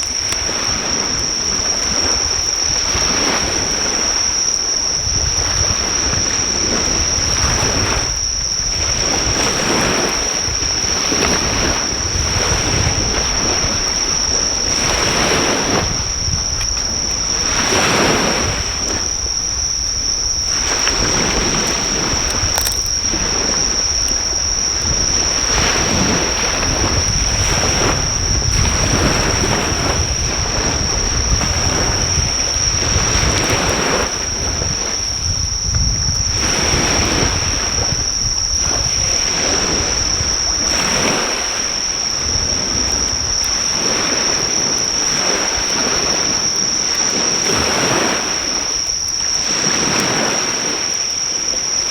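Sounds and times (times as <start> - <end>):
high-pitched insect trill: 0.0 - 51.9
waves breaking on a beach: 0.0 - 51.9
wind rumbling on microphone: 0.0 - 51.9
campfire crackling: 19.1 - 29.2.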